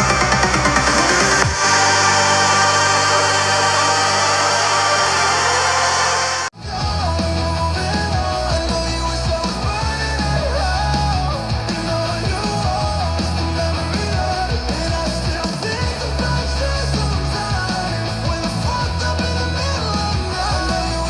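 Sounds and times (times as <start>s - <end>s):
rock music on a speaker: 0.0s - 21.0s.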